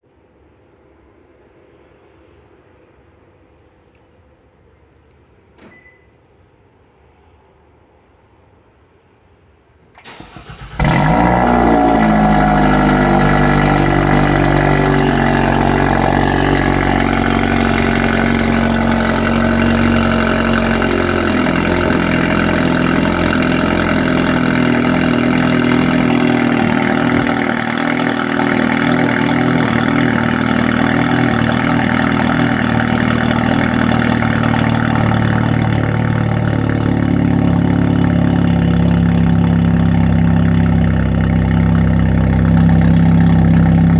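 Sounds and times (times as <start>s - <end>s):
car engine cold start idling: 9.9s - 43.9s.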